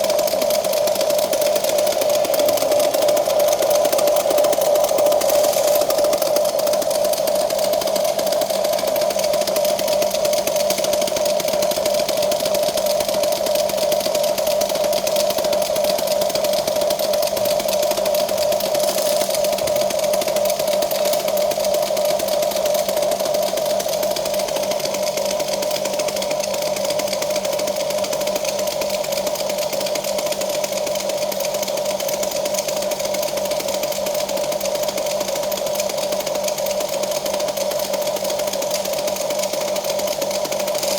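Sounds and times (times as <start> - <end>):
small electric motor whine: 1.0 - 8.4, 17.8 - 23.1.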